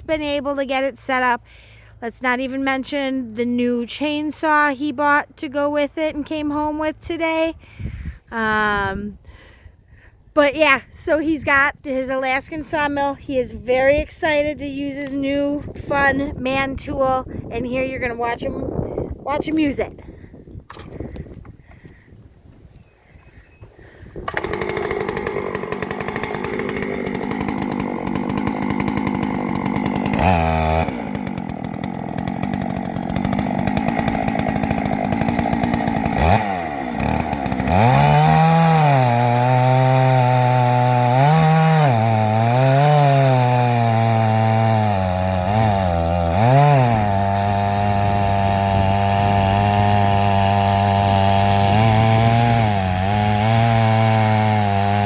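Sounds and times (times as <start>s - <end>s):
chainsaw cutting log: 11.9s - 19.9s, 20.7s - 21.8s, 24.0s - 55.0s.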